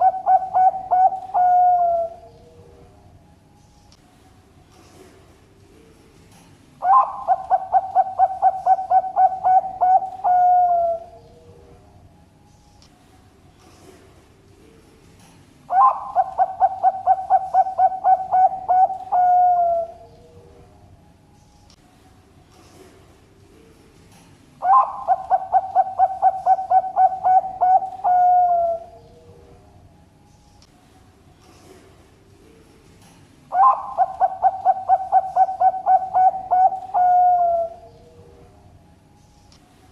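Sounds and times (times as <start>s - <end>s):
dove cooing: 0.0s - 2.9s, 6.8s - 11.7s, 15.7s - 20.4s, 24.6s - 29.5s, 33.5s - 38.5s.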